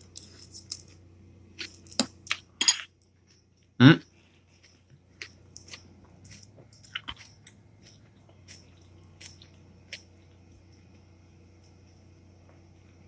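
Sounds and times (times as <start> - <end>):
cereal crunching while chewed: 1.6 - 11.0.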